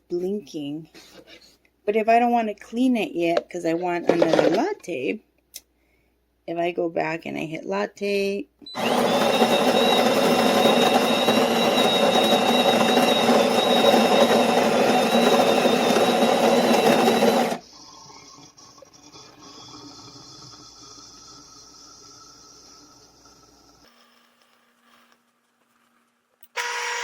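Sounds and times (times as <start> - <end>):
coffee grinder grinding beans: 8.7 - 27.0.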